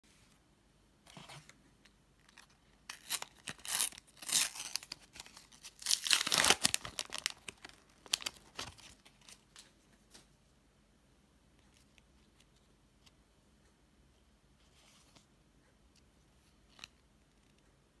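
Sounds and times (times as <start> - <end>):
paper wrappers tearing and crinkling: 2.9 - 9.6.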